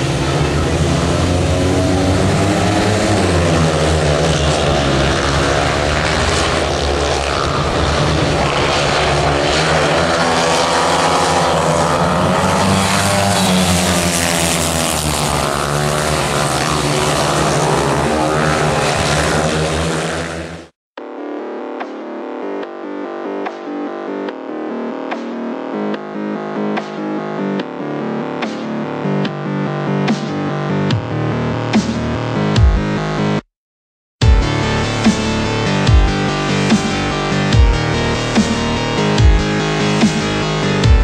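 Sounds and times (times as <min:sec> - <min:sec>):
motorcycle engines racing: 0:00.0 - 0:20.8, 0:34.2 - 0:41.0.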